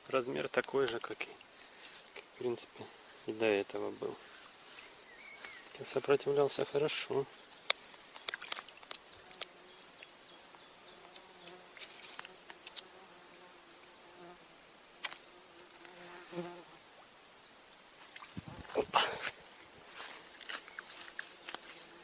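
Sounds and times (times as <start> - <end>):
flying insect buzzing: 9.1 - 16.9.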